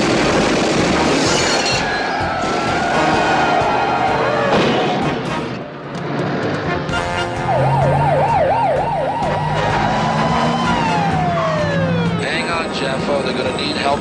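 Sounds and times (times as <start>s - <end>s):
vehicle siren wailing: 1.3s - 5.1s, 7.0s - 14.0s.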